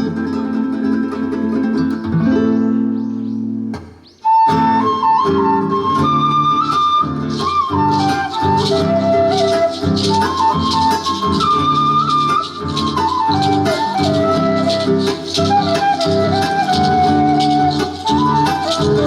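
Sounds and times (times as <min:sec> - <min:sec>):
strummed guitar: 0:00.0 - 0:19.0
quena flute melody: 0:03.9 - 0:19.0
shaker: 0:07.2 - 0:19.0.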